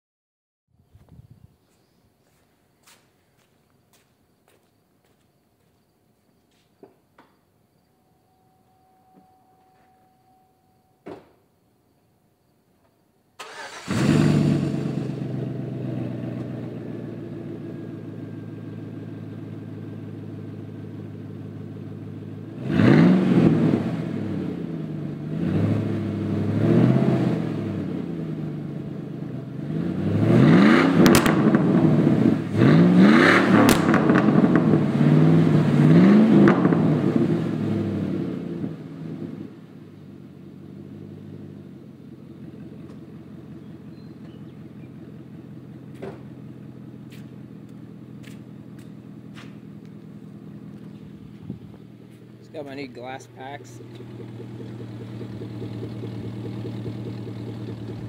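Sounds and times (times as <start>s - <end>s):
truck engine revving: 13.4s - 17.6s, 22.5s - 28.3s, 29.4s - 38.8s, 50.6s - 58.0s
truck engine starting: 13.4s - 39.7s, 40.8s - 58.0s
truck engine idling: 41.1s - 58.0s.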